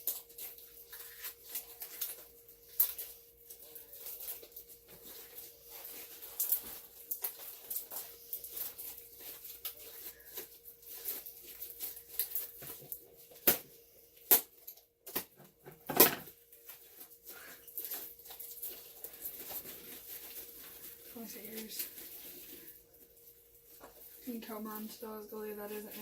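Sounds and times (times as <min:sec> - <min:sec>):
slime squishing and crackling: 0:00.0 - 0:13.6.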